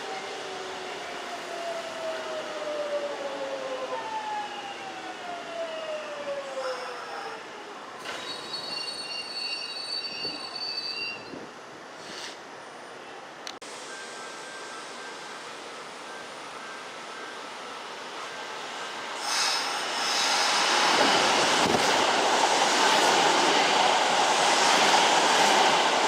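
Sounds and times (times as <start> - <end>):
high brake squeal: 8.0 - 11.4.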